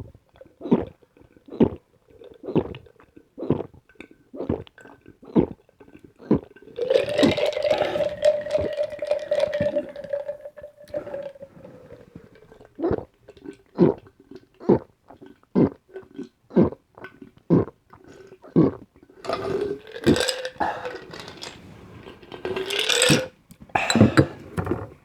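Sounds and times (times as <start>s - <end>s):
person gulping drink: 0.4s - 24.9s
person burping: 6.8s - 11.5s, 18.6s - 21.4s, 23.8s - 24.4s.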